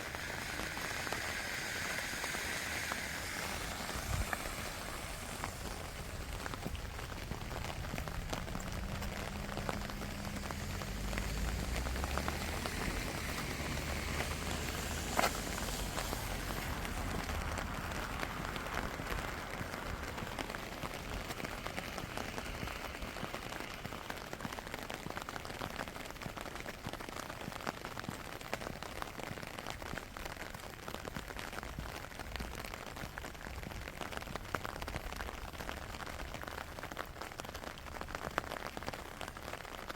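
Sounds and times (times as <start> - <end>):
low rumble: 0.0 - 23.1
steady rain falling: 0.0 - 39.9.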